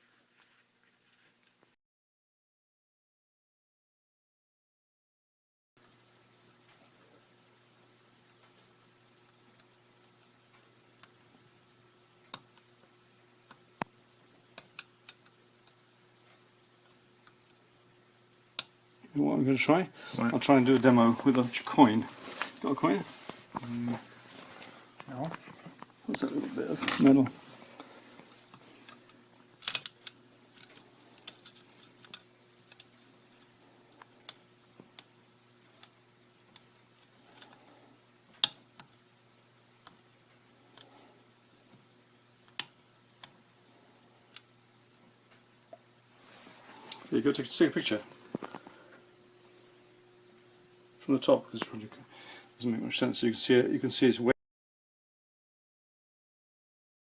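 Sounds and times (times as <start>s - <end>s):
plastic parts clicking and tapping: 29.6s - 32.9s.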